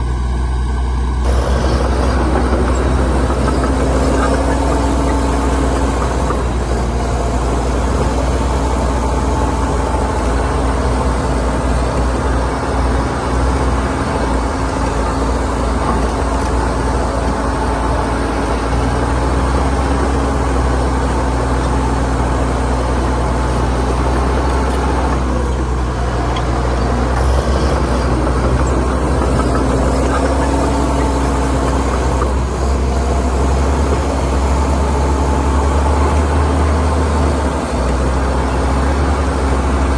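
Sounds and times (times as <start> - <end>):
heavy diesel engines under load: 0.0 - 39.9.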